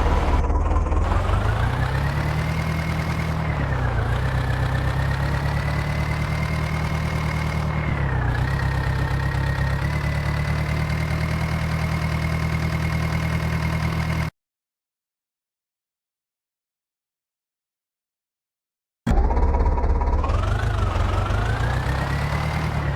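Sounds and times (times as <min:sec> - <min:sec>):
heavy diesel engine running: 0:00.0 - 0:14.3, 0:19.1 - 0:22.9.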